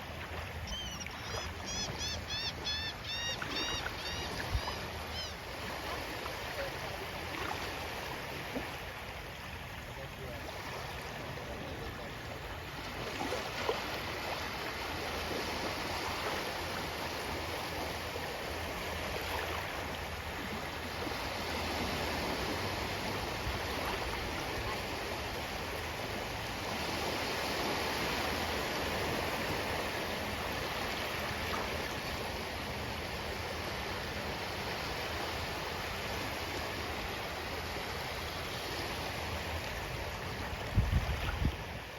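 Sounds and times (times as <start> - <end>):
ocean waves washing ashore: 0.0 - 41.9.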